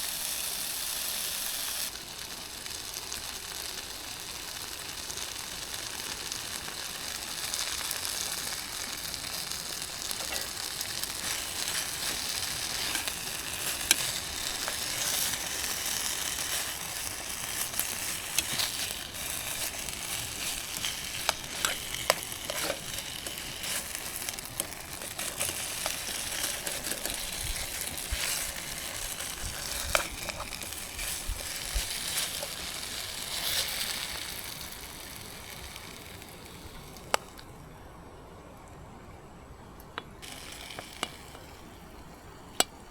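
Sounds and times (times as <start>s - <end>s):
food sizzling in a pan: 0.0s - 37.4s, 40.2s - 41.8s.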